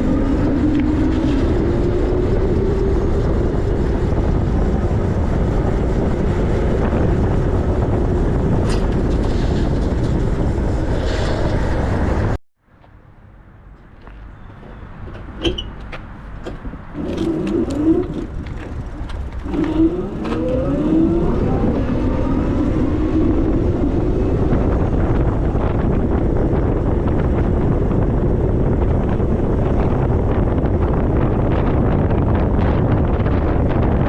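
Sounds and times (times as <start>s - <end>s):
wind and tyre noise: 0.0s - 34.0s
electric motor whining: 17.0s - 25.3s.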